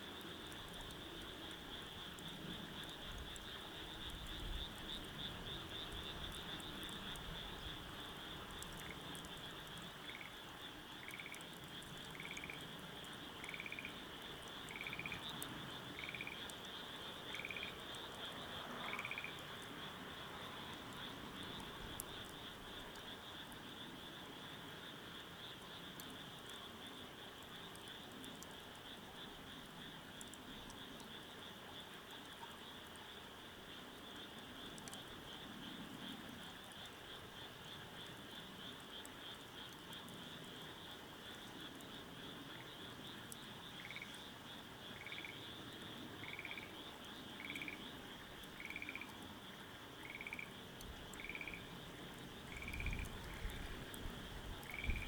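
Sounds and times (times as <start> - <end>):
frog calling: 10.0 - 10.4, 11.0 - 11.4, 12.1 - 12.6, 13.4 - 14.0, 14.7 - 16.5, 17.3 - 17.8, 18.8 - 19.5, 43.8 - 44.2, 44.9 - 45.4, 46.2 - 47.9, 48.5 - 49.2, 50.0 - 50.5, 51.1 - 51.7, 52.4 - 55.0.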